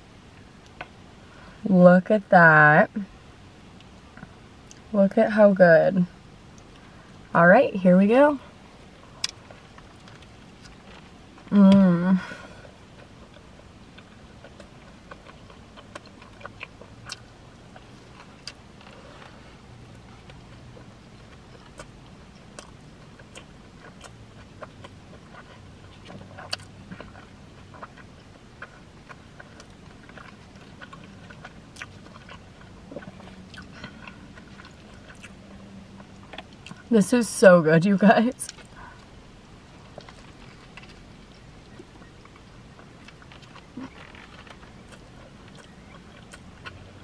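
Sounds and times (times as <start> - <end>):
person chewing food: 9.0 - 11.5, 12.2 - 36.9, 38.5 - 47.0.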